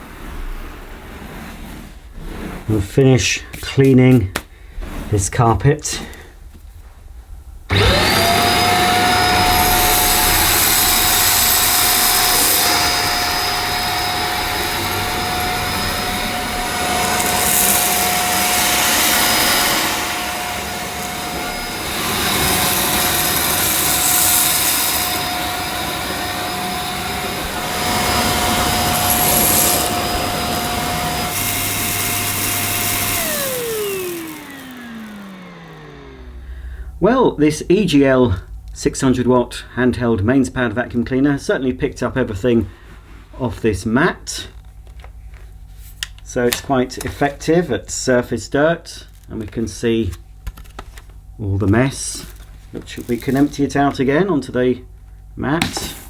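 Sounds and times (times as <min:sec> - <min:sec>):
handheld vacuum cleaner running: 0:07.7 - 0:37.0, 0:51.9 - 0:54.0
vacuum motor spinning down: 0:07.7 - 0:37.0.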